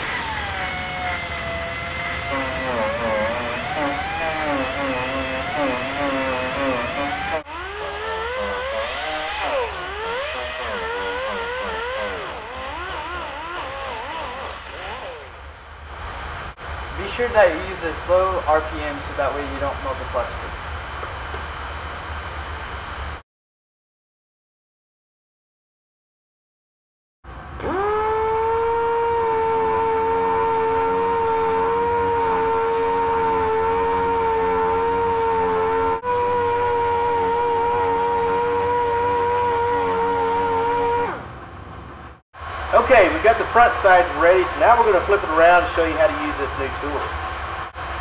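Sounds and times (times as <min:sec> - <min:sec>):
sander sanding plastic: 0:00.0 - 0:15.5, 0:27.6 - 0:41.3.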